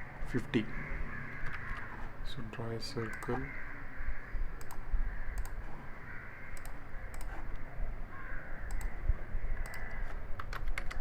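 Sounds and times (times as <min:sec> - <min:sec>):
faint background noise: 0:00.0 - 0:11.0
computer mouse clicks: 0:01.4 - 0:02.0, 0:03.0 - 0:03.4, 0:04.6 - 0:05.6, 0:06.5 - 0:07.7, 0:08.6 - 0:11.0.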